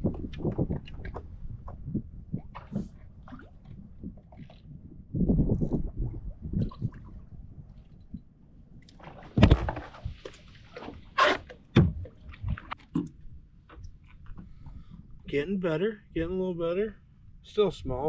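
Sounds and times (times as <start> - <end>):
knocks and clicks on hull: 0.0 - 4.6, 8.0 - 15.2
water splashing against kayak: 8.8 - 15.1.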